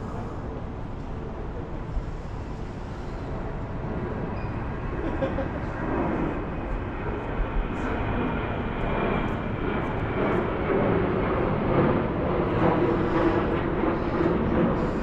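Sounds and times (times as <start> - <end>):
airplane flying overhead: 0.0 - 15.0.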